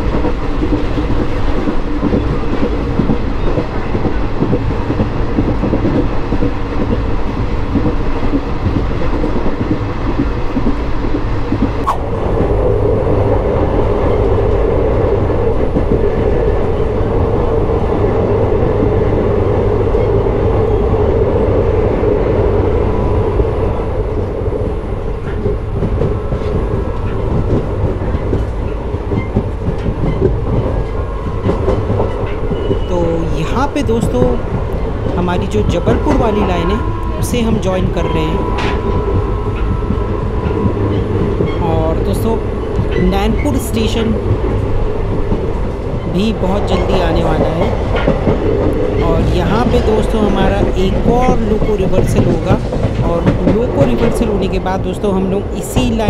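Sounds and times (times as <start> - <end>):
train wheels rumbling on rails: 0.0 - 56.0
rushing air: 11.6 - 15.4.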